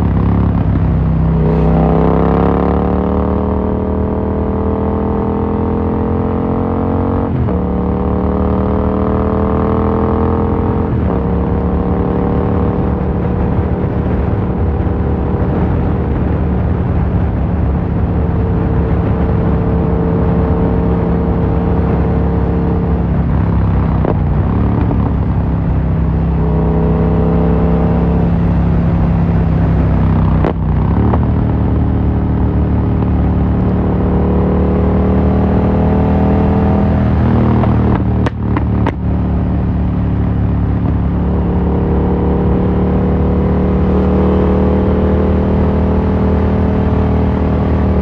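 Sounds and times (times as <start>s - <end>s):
motorcycle engine accelerating: 0.0s - 48.0s.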